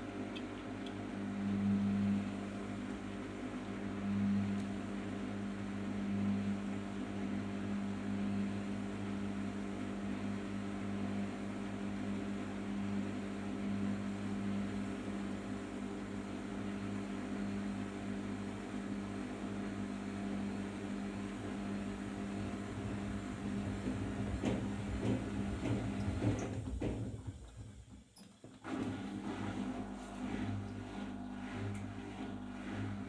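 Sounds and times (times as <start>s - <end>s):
washing machine spinning: 20.2s - 33.0s.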